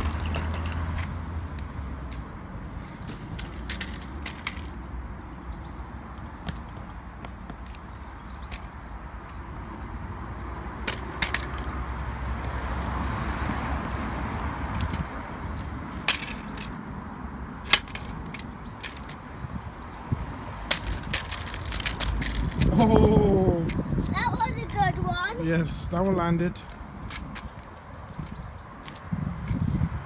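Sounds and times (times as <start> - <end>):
toy trucks clattering on concrete: 0.0 - 1.2, 3.0 - 4.8, 10.8 - 11.8, 14.7 - 16.8, 17.6 - 19.2, 20.7 - 22.9.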